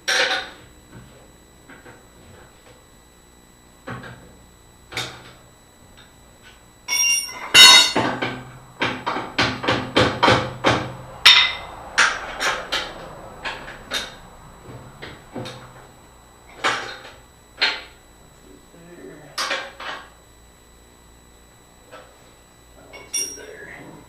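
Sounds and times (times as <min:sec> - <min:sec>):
metal tools striking steel: 0:06.9 - 0:08.0, 0:11.2 - 0:12.6.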